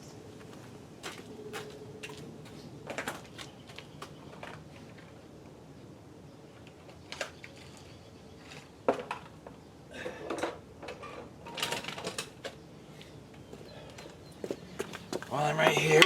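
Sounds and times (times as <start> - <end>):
metal tools clinking: 15.3 - 16.0.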